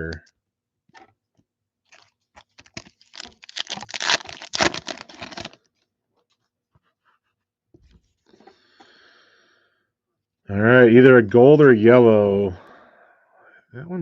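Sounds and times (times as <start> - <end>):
foil pack crinkling and tearing: 1.9 - 5.7.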